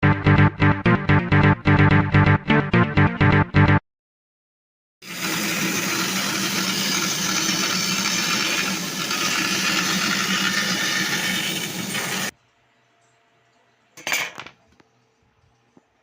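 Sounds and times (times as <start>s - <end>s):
electric power tool motor whirring: 5.0s - 12.3s.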